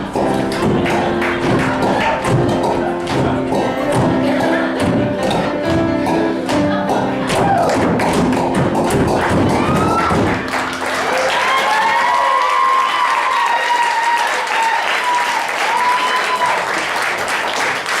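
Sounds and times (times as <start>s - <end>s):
stage music: 0.0s - 17.6s
audience applauding: 0.5s - 2.4s, 7.4s - 18.0s.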